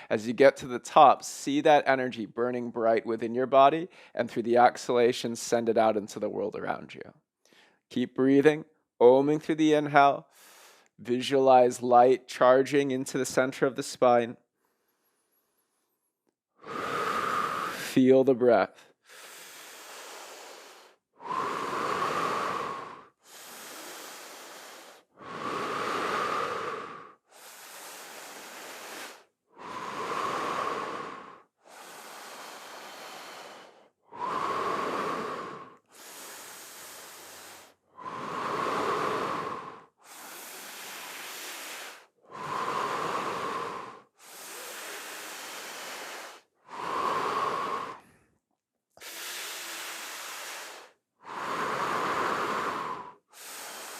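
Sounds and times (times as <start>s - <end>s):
deep rhythmic human breathing: 0.0s - 0.2s, 3.8s - 4.2s, 10.2s - 11.0s, 16.5s - 18.0s, 18.7s - 53.9s.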